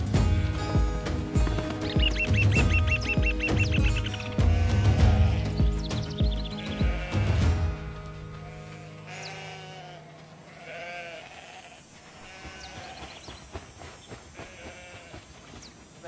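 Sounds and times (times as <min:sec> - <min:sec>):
background music: 0:00.0 - 0:11.2
high bird chirps: 0:01.8 - 0:04.5, 0:05.4 - 0:07.0
sheep bleating: 0:04.3 - 0:13.2, 0:14.4 - 0:15.2.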